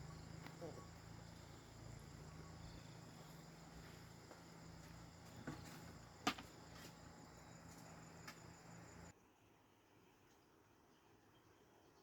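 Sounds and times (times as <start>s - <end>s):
crickets chirring: 0.0s - 9.1s.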